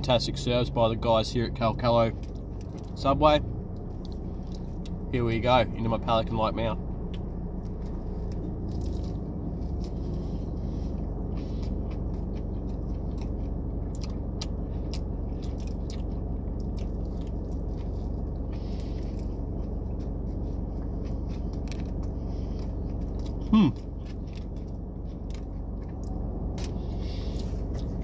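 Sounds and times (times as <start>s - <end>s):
low rumble: 0.0s - 28.0s
chewing and biting sandwich: 3.8s - 5.0s, 7.0s - 28.0s.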